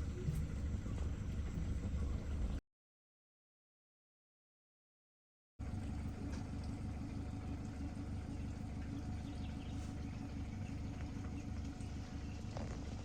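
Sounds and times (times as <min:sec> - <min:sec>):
boat motor rumbling: 0:00.0 - 0:02.6, 0:05.6 - 0:13.0.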